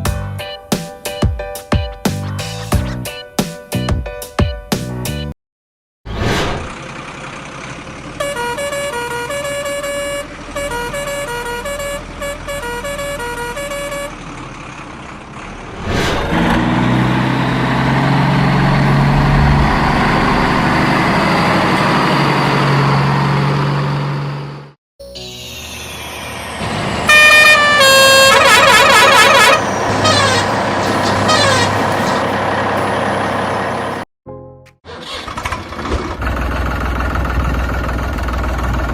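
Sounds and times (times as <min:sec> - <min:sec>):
truck engine: 0:06.1 - 0:24.8, 0:25.4 - 0:34.1, 0:34.8 - 0:38.9
low truck drone: 0:06.1 - 0:34.5, 0:35.2 - 0:38.9
musical horn tune: 0:08.2 - 0:14.1, 0:27.1 - 0:32.2.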